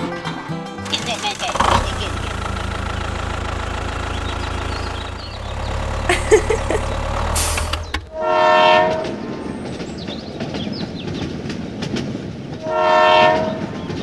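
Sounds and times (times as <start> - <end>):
horn sounding: 0.9 - 9.0.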